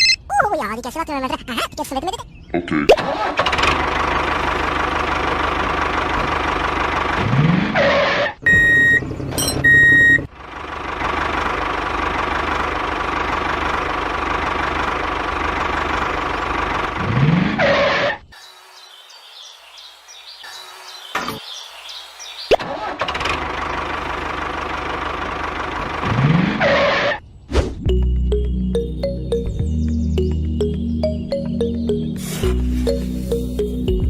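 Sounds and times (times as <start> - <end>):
mini tractor engine running: 3.1 - 17.3, 22.6 - 27.0
high horn beeps: 8.5 - 9.0.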